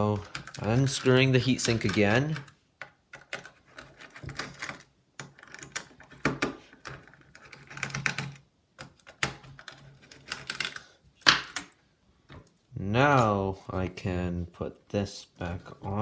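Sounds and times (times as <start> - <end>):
screwdriver and metal parts clicking: 0.0 - 11.8.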